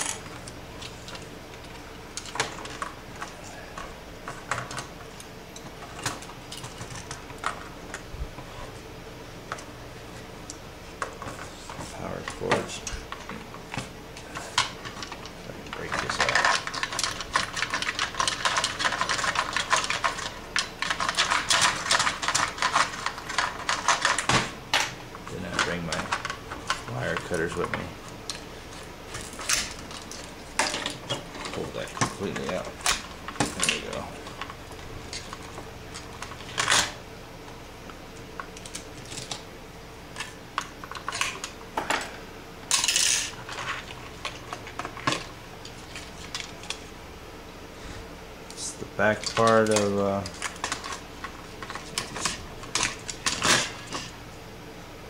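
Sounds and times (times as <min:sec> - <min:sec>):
plastic parts clicking and crackling: 0:12.1 - 0:24.4, 0:25.2 - 0:37.0, 0:38.4 - 0:39.4, 0:40.1 - 0:41.6, 0:49.0 - 0:54.2.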